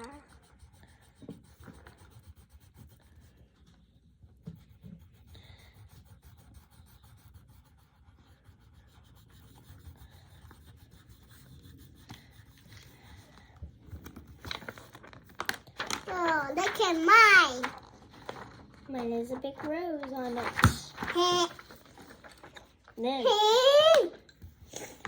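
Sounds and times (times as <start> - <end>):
colored pencil scratching on paper: 0.0 - 15.0.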